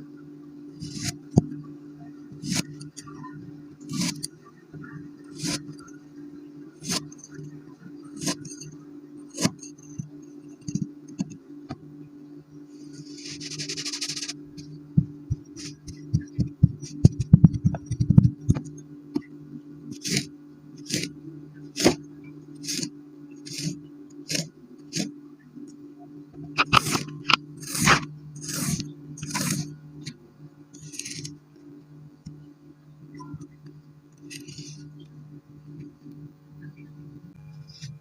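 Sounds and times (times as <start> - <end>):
steady low hum: 0.0 - 38.0
knife cutting sand: 0.8 - 1.2, 2.4 - 2.8, 3.9 - 4.3, 5.3 - 5.7, 6.8 - 7.1, 8.2 - 8.6, 13.0 - 14.4, 15.6 - 16.0, 19.9 - 21.1, 21.8 - 22.0, 22.6 - 25.1, 26.6 - 29.7, 30.8 - 31.3.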